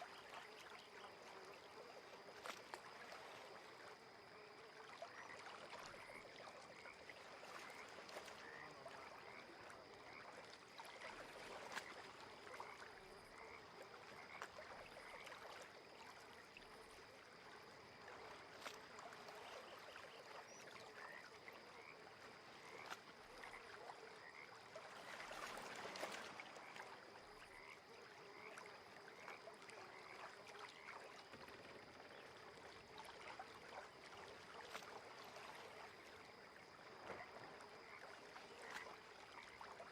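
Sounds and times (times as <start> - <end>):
gentle lapping water hiss: 0.0 - 39.9
frogs calling: 3.8 - 15.6, 19.4 - 24.8, 26.7 - 31.0.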